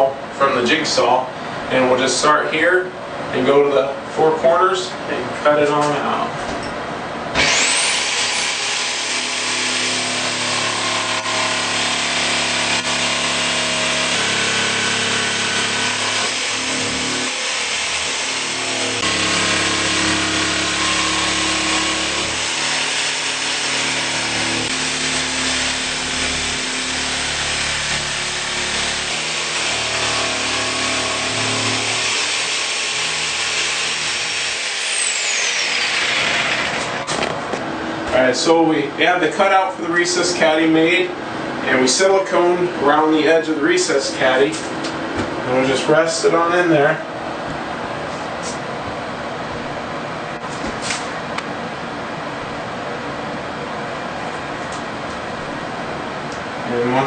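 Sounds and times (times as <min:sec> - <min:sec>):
jigsaw cutting panel: 0:07.4 - 0:37.3.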